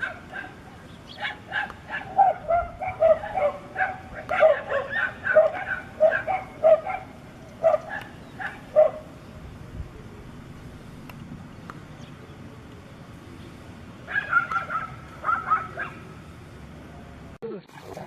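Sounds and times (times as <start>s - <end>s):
dog yelping: 0.0s - 9.1s, 14.1s - 16.0s.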